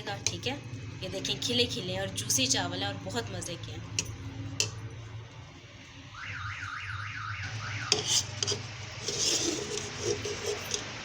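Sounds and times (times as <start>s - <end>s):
utensils scraping: 7.8s - 11.0s.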